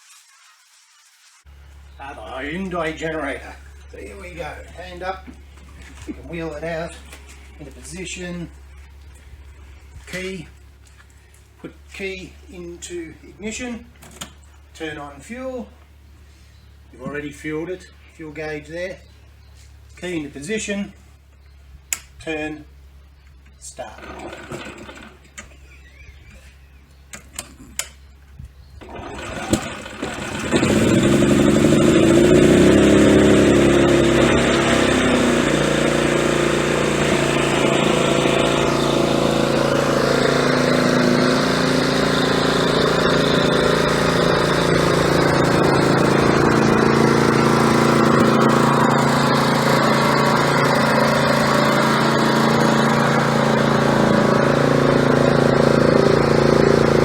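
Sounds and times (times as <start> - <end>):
generator engine cranking and running: 1.5 - 18.9, 21.2 - 57.0
generator starter clicks: 21.9 - 22.2, 23.5 - 25.6, 27.1 - 31.0.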